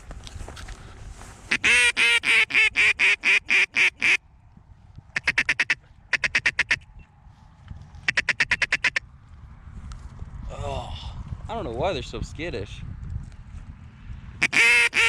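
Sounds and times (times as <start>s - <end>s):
duck call quacks: 1.5s - 4.2s, 5.2s - 6.8s, 8.1s - 9.0s, 14.4s - 15.0s.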